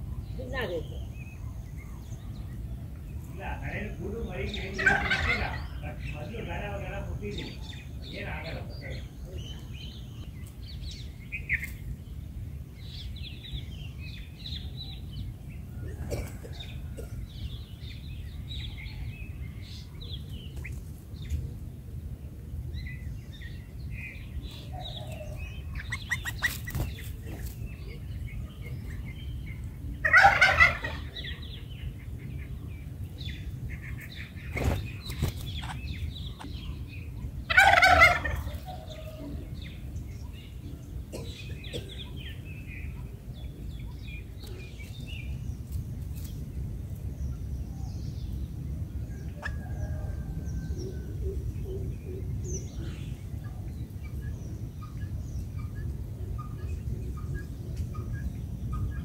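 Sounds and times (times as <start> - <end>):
birds chirping: 0.0 - 59.0
loud harsh bird calls: 24.6 - 28.0.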